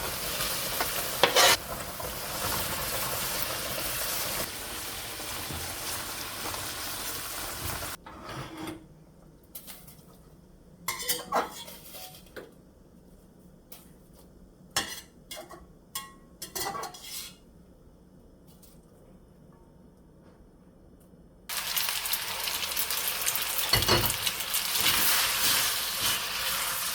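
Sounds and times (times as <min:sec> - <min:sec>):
utensils clinking on cookware: 0:00.7 - 0:01.6, 0:10.9 - 0:12.4, 0:14.8 - 0:17.4, 0:23.6 - 0:26.6.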